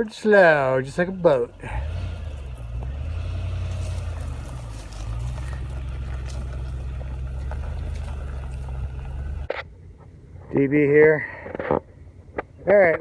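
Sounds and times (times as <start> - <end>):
engine running at low revs: 0.0 - 9.5.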